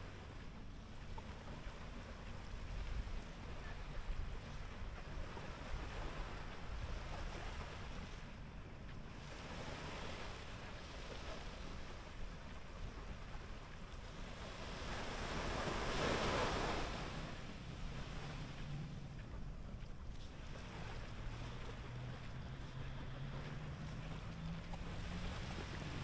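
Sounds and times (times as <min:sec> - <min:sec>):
wind rumble on microphone: 0:00.0 - 0:26.0
surf washing onto beach: 0:09.2 - 0:19.5, 0:20.4 - 0:26.0.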